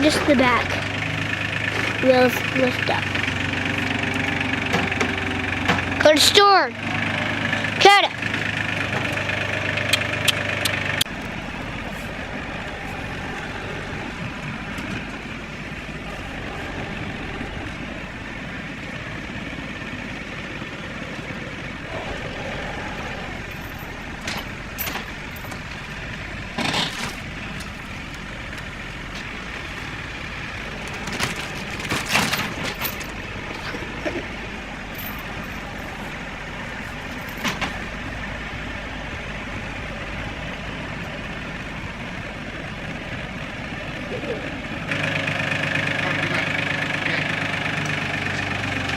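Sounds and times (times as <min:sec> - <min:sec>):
tractor diesel engine running: 0:00.0 - 0:48.9
metal clanks and knocks: 0:04.5 - 0:06.1, 0:26.5 - 0:27.8, 0:30.8 - 0:34.2.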